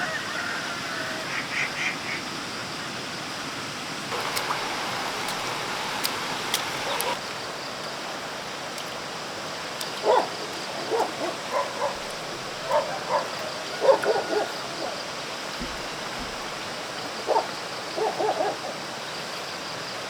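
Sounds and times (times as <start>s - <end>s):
steady high hiss: 4.1s - 8.4s
short animal calls: 4.2s - 7.2s.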